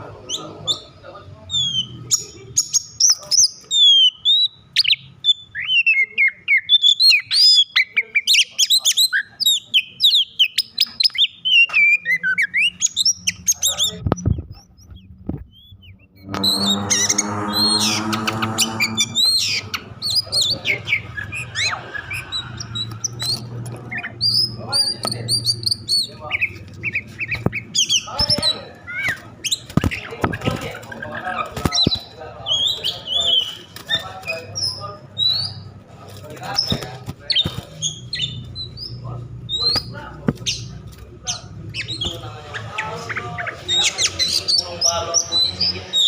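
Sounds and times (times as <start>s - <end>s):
bird song with sliding whistles: 9.1s - 23.5s
harsh buzzy bird rasp: 16.3s - 23.6s.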